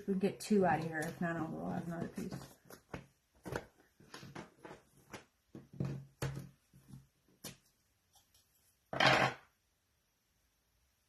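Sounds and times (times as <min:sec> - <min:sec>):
hands tapping and rustling materials: 0:00.1 - 0:08.5.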